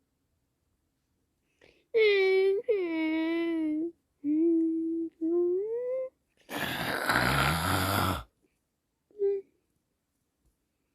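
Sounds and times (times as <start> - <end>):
person humming: 2.0 - 8.3, 9.1 - 9.6
breathy rasping noise: 6.5 - 8.3.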